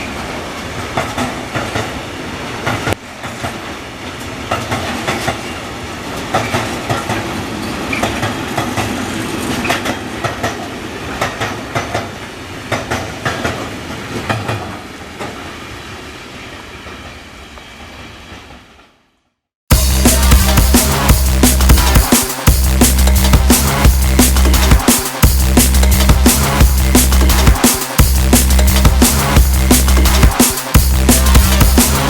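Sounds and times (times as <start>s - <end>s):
wheels clicking over rail joints: 0.0s - 2.0s, 2.6s - 15.4s
freight train wagons rolling: 0.0s - 15.6s.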